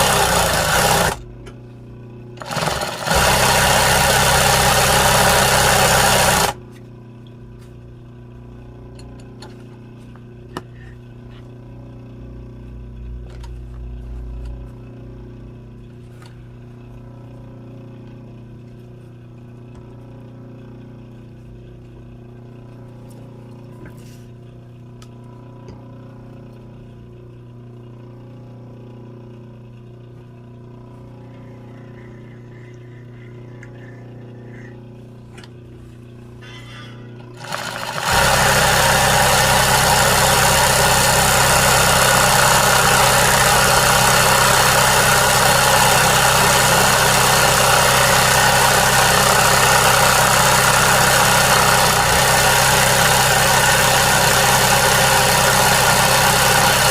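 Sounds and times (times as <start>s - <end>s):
sewing machine running burst: 0.0s - 1.2s, 2.4s - 6.6s, 37.3s - 56.9s
sewing machine motor hum: 0.0s - 6.8s, 7.6s - 56.9s.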